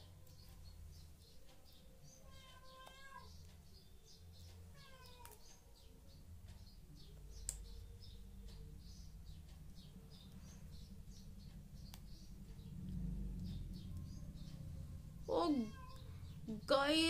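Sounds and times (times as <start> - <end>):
faint high chirping: 0.0 - 17.0.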